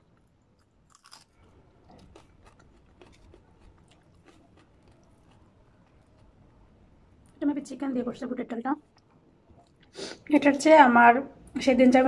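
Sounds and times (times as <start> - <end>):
faint chewing: 0.0 - 7.4.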